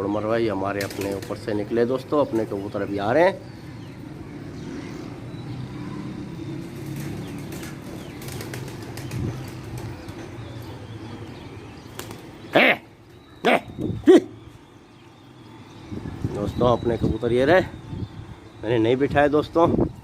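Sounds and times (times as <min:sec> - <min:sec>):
pigeon wings flapping: 0:00.8 - 0:01.4, 0:06.8 - 0:10.2.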